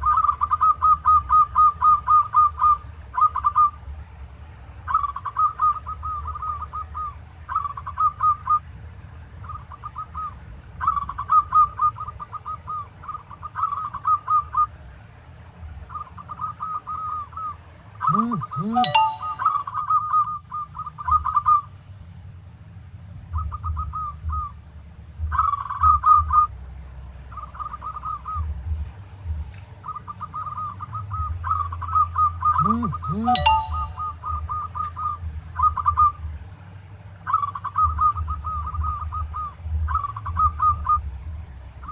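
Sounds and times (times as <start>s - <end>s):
dove cooing: 0.0s - 3.8s, 4.9s - 8.6s, 9.4s - 14.7s, 15.9s - 21.7s, 23.3s - 24.6s, 25.3s - 26.5s, 27.3s - 28.8s, 29.8s - 36.2s, 37.3s - 41.1s
lower rising and falling call: 16.4s - 21.6s, 29.8s - 36.2s.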